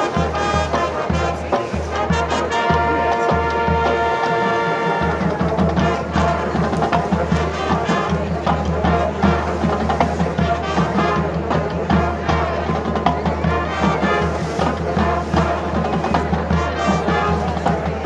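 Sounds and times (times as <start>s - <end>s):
brass band playing: 0.0s - 18.0s
drums beating steady rhythm: 0.0s - 18.0s.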